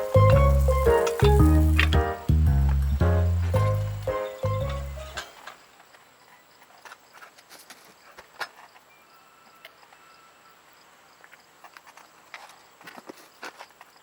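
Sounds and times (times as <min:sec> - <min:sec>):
wood fire crackling: 0:00.0 - 0:05.3.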